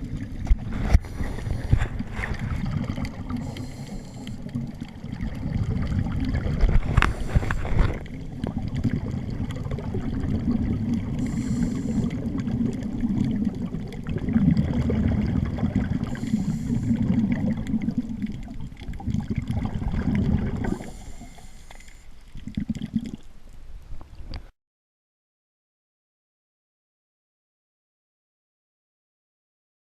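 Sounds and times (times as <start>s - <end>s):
water rumbling on camera housing: 0.0s - 3.6s, 4.3s - 21.0s
regulator bubbles hissing: 0.0s - 23.5s.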